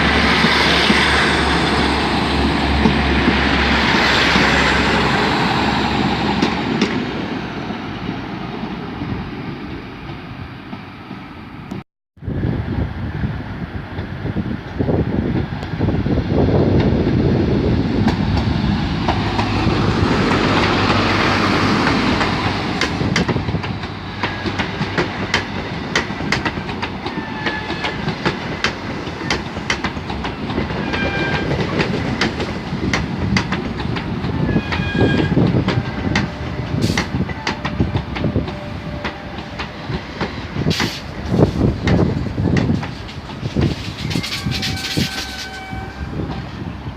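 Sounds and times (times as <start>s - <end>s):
train rushing past: 0.0s - 46.9s
wheels clicking over rail joints: 21.7s - 46.4s
short high wheel squeals: 43.9s - 46.0s.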